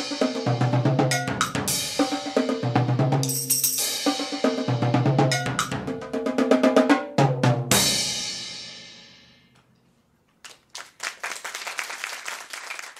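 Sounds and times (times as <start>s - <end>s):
drum kit playing: 0.0s - 9.6s
pitched backing music: 0.0s - 9.6s
audience applause: 10.4s - 12.9s.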